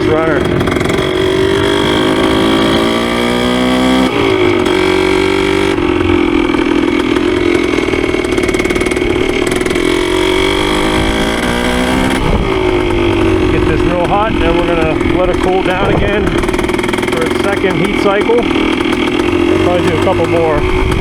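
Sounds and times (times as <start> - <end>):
two-stroke motorcycle engine: 0.0 - 21.0.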